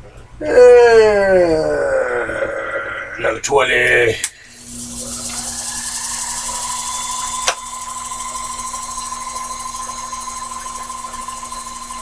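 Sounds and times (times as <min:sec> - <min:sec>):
cutting hiss: 0:04.2 - 0:12.0
lathe motor whine: 0:04.4 - 0:12.0.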